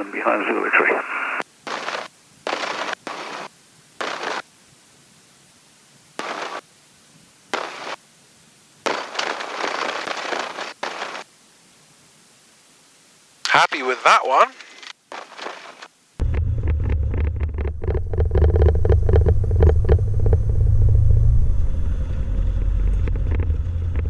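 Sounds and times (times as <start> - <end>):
headset radio hiss bursts: 0.0 - 5.6, 6.2 - 16.2.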